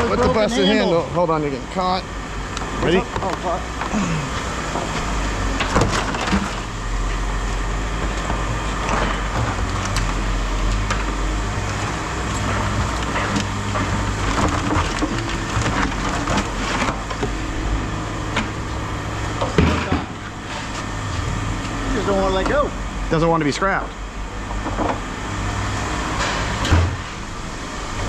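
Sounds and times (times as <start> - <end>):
scrap metal clanking and scraping: 19.5 - 21.4, 26.1 - 27.2.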